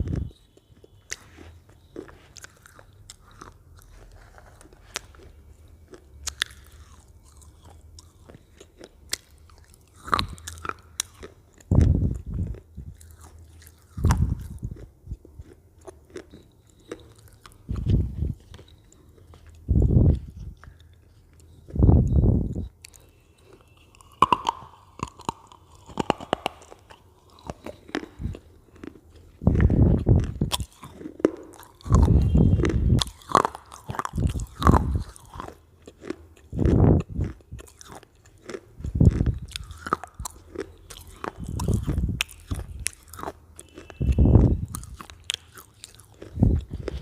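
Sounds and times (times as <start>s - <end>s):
dull chewing thuds: 0.0s - 47.0s
crisp chip crunches: 22.8s - 47.0s.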